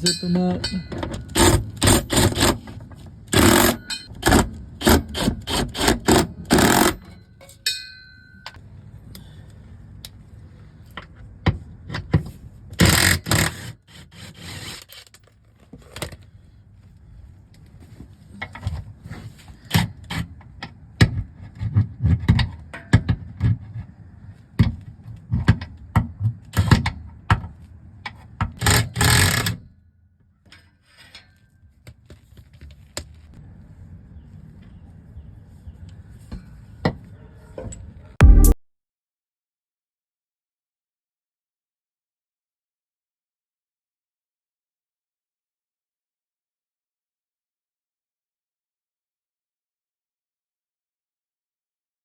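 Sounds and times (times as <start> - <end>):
wrench clicking and clanking on metal: 0.0 - 7.9, 12.8 - 13.8, 28.6 - 29.6
short metallic ring: 3.5 - 4.1, 7.0 - 8.6.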